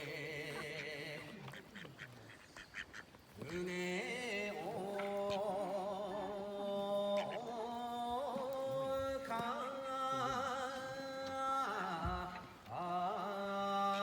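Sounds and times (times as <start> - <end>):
person singing with vibrato: 3.4 - 14.0.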